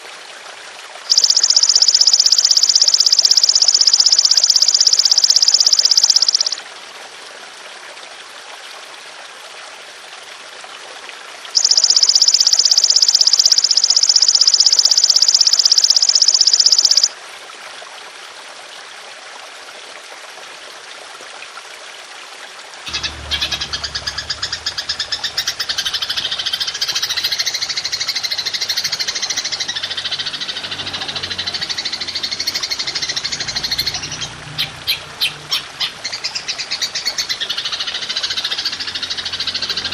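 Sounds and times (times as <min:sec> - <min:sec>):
trickling water: 0:00.0 - 0:39.9
grasshopper buzzing trill: 0:01.1 - 0:06.6, 0:11.6 - 0:17.1.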